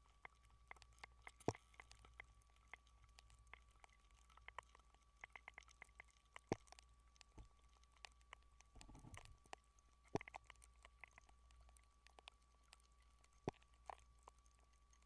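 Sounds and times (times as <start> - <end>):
faint clicks and crackles: 0.0 - 15.0
low hum: 8.6 - 9.4.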